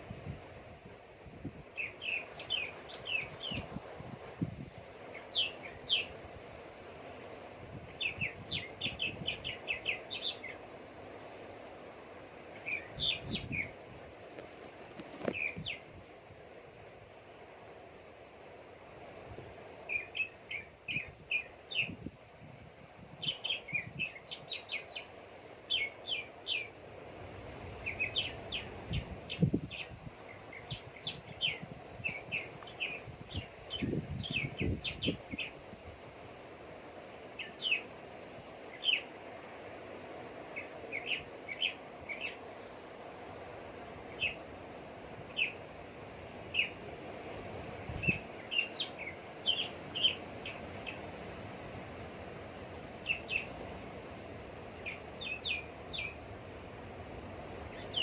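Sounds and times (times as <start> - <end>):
small birds chirping: 1.8 - 3.7, 5.2 - 6.2, 7.9 - 10.6, 15.1 - 15.9, 27.8 - 35.6, 38.7 - 39.1, 40.5 - 42.6, 44.1 - 44.4, 45.3 - 45.6, 46.5 - 46.8, 47.9 - 51.2, 53.0 - 53.6, 54.8 - 56.2, 57.7 - 58.0.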